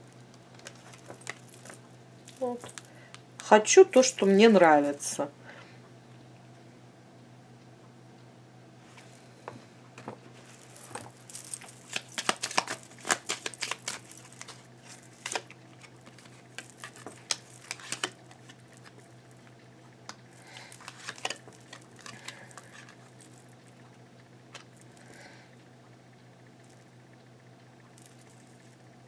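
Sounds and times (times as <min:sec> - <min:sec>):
steady low hum: 0:00.0 - 0:29.0
cards clicking and tapping: 0:11.3 - 0:18.6, 0:20.1 - 0:23.4.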